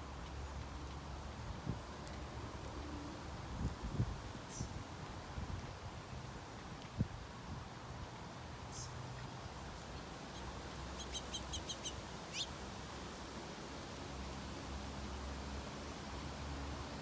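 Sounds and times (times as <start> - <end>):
small birds chirping: 8.7 - 12.6.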